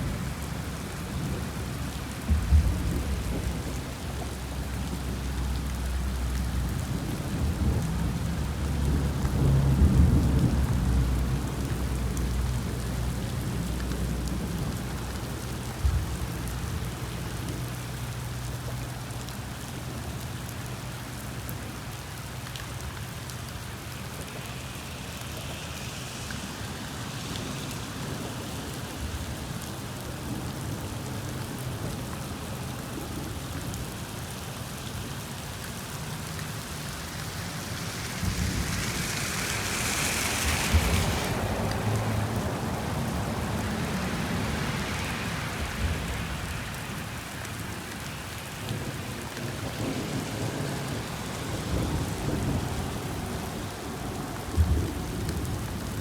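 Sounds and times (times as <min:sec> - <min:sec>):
rain on a moving car: 0:00.0 - 0:56.0
low car road hum: 0:35.6 - 0:47.2.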